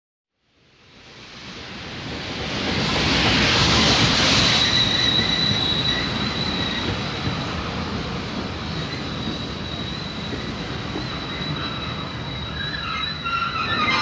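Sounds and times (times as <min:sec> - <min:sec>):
train rolling past: 0:00.6 - 0:14.0
high-pitched wheel squeal: 0:04.3 - 0:07.2, 0:08.8 - 0:14.0.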